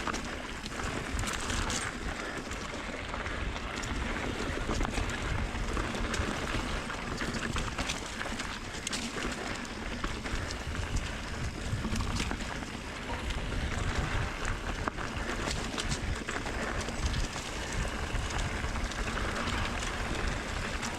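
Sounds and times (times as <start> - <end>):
bike clicks and rattles: 0.0 - 20.9
tyres rolling over dirt: 0.0 - 20.9
wind buffeting microphone: 10.0 - 20.9.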